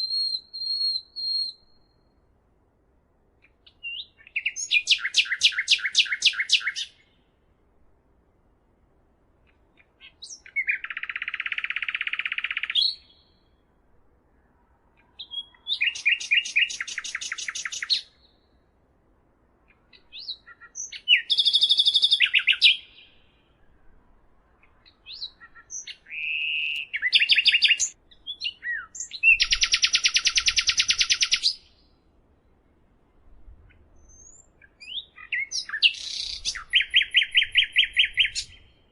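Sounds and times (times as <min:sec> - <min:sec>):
songbird singing trill: 0:00.0 - 0:02.3, 0:03.4 - 0:07.4, 0:09.7 - 0:13.7, 0:15.0 - 0:18.7, 0:19.6 - 0:23.8, 0:24.6 - 0:32.9, 0:33.6 - 0:38.9.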